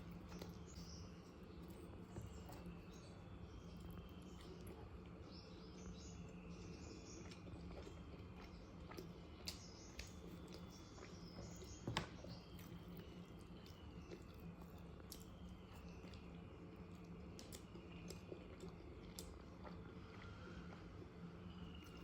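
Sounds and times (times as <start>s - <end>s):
low steady hum: 0.0s - 22.0s
soft chewing: 0.0s - 22.0s.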